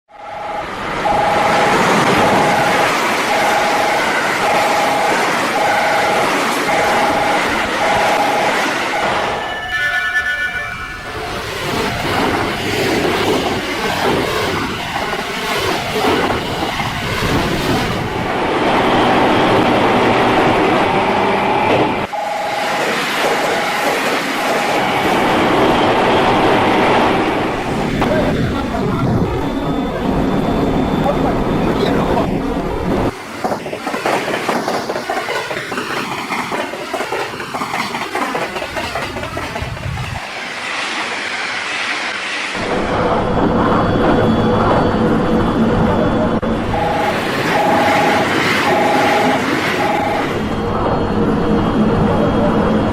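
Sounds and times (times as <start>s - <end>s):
train rolling on rails: 0.1s - 52.9s
train wheels clicking over rail joints: 33.0s - 41.1s.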